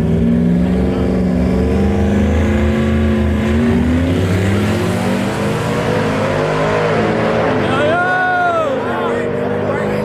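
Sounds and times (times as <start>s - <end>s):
racing truck engines: 0.0s - 10.0s.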